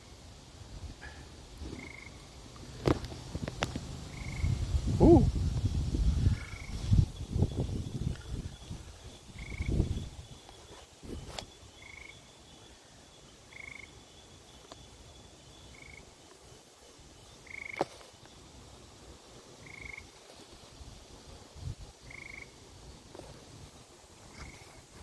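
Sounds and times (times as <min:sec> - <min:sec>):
frogs trilling: 0:01.0 - 0:05.3, 0:06.2 - 0:16.5, 0:17.2 - 0:18.1, 0:19.6 - 0:20.2, 0:22.0 - 0:22.7, 0:24.3 - 0:24.8.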